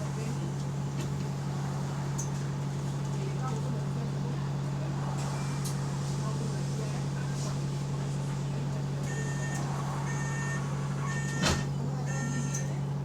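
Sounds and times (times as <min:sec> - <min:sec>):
bus engine drone: 0:00.0 - 0:13.0
short beeps: 0:09.1 - 0:12.8.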